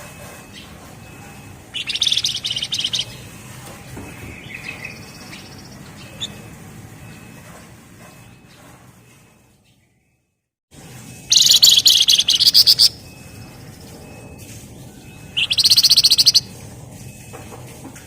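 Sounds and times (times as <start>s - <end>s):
bird rattling trill: 1.7s - 3.3s, 11.3s - 13.0s, 15.3s - 16.6s.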